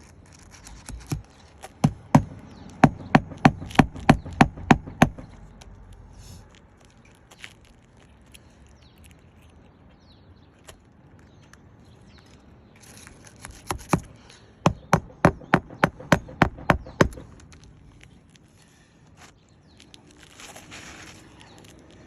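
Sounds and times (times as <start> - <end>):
hammer driving nails: 1.8 - 5.3, 14.7 - 17.4.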